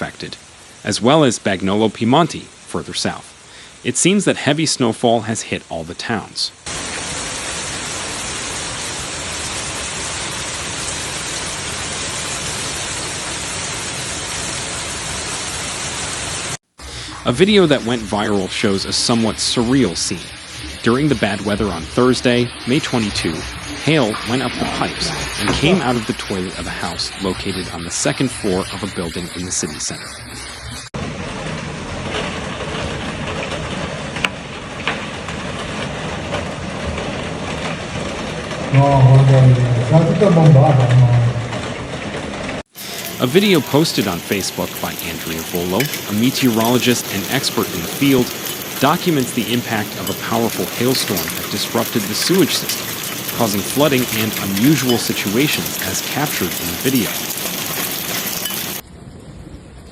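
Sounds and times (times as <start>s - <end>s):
heavy rain downpour: 0.0s - 59.9s
water rushing through toilet: 17.0s - 30.8s, 42.6s - 58.8s
ice clicking: 43.0s - 58.8s.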